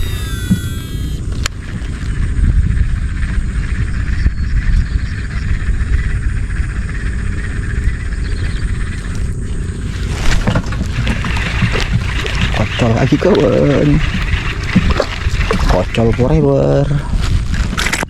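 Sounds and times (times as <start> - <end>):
gliding whistles: 0.0 - 1.8
chorus of calling animals: 5.1 - 17.3.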